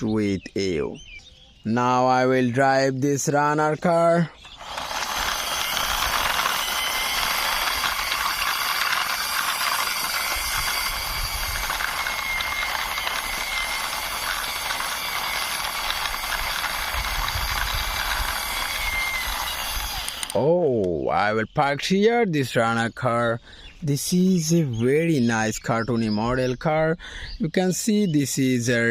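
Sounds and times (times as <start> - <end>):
toy car wheels clicking rattle: 4.6 - 20.4.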